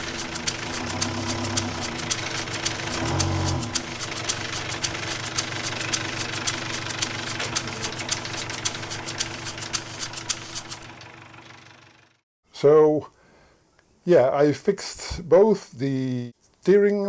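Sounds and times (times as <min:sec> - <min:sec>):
boat diesel engine idling: 0:00.0 - 0:12.2
sharp ticking clatter: 0:00.0 - 0:12.2.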